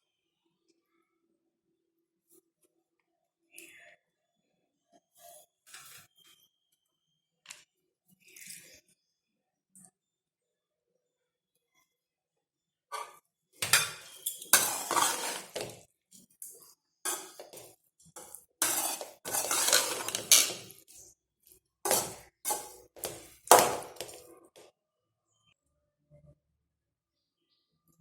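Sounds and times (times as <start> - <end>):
metal spoon scraping a pot: 12.9 - 21.0, 21.9 - 24.3.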